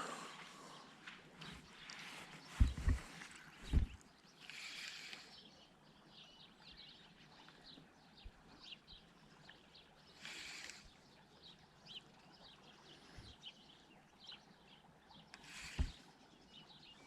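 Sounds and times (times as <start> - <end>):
faint songbirds chirping: 0.0 - 17.0
soft low thuds: 2.5 - 4.0.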